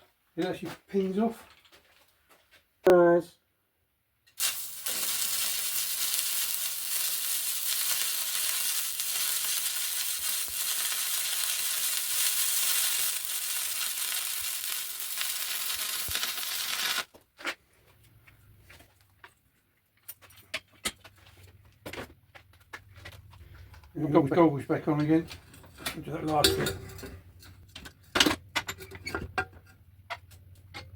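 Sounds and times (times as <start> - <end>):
arc welder crackling hiss: 4.4 - 17.1.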